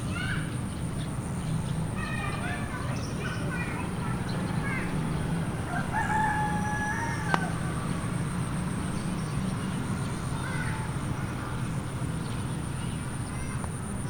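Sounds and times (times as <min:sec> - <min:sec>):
rooster crowing: 0:05.6 - 0:08.2.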